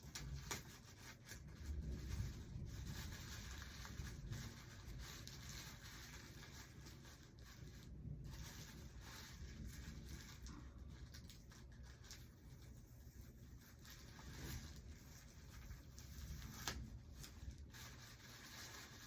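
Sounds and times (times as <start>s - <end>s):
rustling and rubbing of items: 0.0s - 19.0s.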